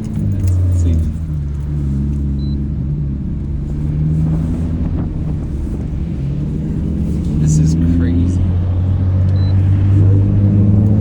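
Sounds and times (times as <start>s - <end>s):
car engine cruising: 0.0s - 11.0s.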